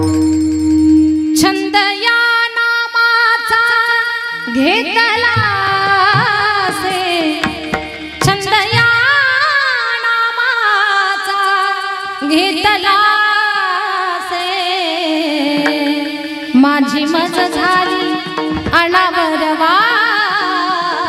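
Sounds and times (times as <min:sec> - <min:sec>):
sustained instrumental accompaniment: 0:00.0 - 0:02.1, 0:04.3 - 0:10.4, 0:15.0 - 0:21.0
person singing devotional song: 0:01.4 - 0:21.0
drum strokes: 0:04.5 - 0:09.8, 0:15.4 - 0:21.0.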